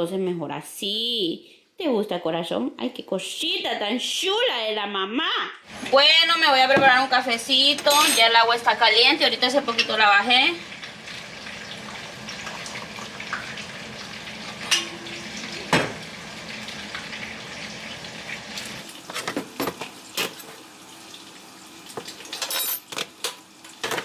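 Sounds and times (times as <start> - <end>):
hot water pouring into cup: 9.1 - 22.4.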